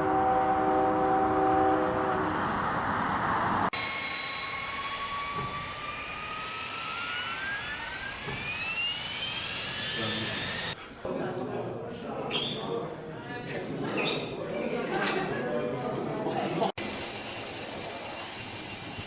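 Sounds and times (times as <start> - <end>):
turbine whine rising in pitch: 0.0 - 10.8
jet engine rush: 2.1 - 10.8.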